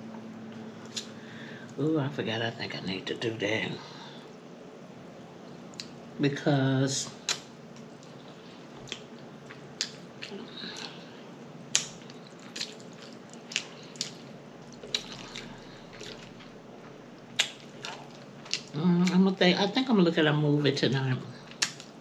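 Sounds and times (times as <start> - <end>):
low steady hiss: 0.0 - 22.0
lip smacks and chewing: 7.3 - 11.0, 11.7 - 19.2, 21.5 - 22.0.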